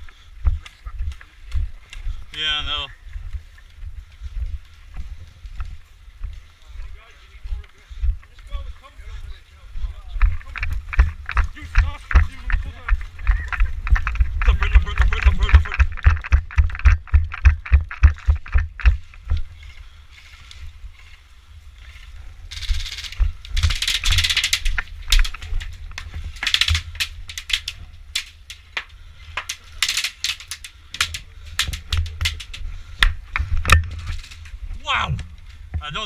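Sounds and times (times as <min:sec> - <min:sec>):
low wind rumble: 0:00.0 - 0:36.0
rustling: 0:00.0 - 0:36.0
microphone handling noise: 0:10.2 - 0:19.6, 0:30.9 - 0:36.0.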